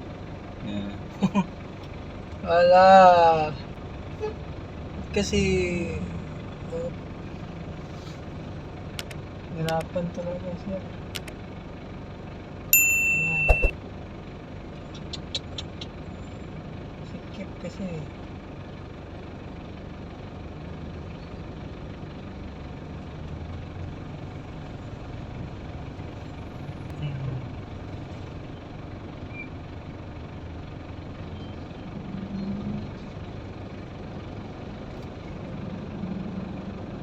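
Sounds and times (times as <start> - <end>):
traffic engines rumbling: 0.0 - 37.0.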